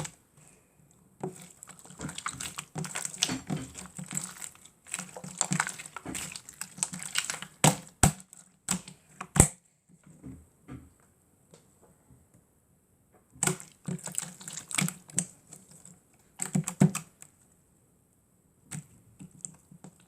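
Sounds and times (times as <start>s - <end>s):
slime squeezed by hand: 1.3s - 8.9s, 13.4s - 15.7s.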